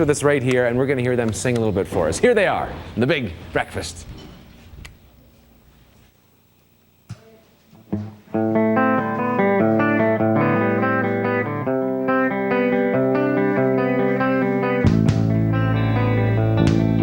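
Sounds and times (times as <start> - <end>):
electric guitar rock intro: 8.0 - 17.0.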